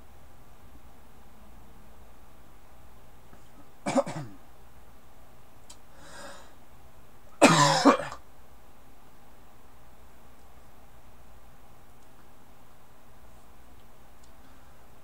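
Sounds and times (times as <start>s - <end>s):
person coughing: 3.9s - 4.4s, 7.4s - 8.2s.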